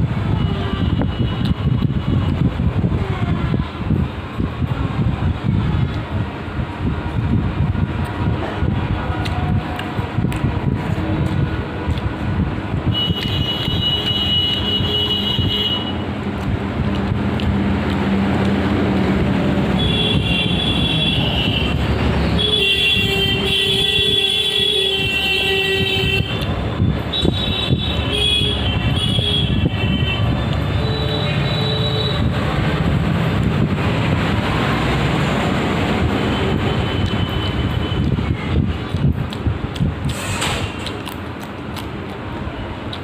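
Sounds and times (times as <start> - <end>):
road traffic rumble: 0.0 - 43.0
vehicle horns honking: 12.9 - 16.1, 19.7 - 32.4.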